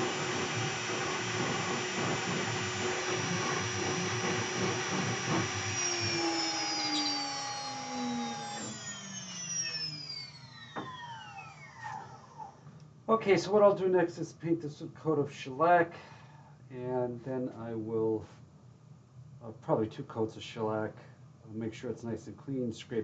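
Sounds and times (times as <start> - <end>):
router spindle running: 0.0 - 12.6
whines spinning down: 0.0 - 12.6.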